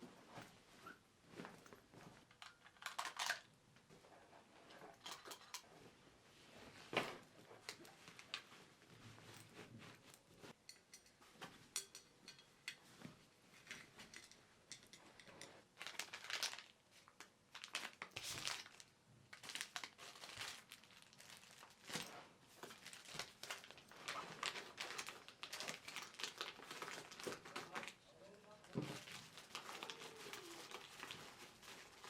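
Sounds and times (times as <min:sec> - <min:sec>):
plastic or paper crinkling: 0:15.7 - 0:28.0, 0:28.6 - 0:32.0.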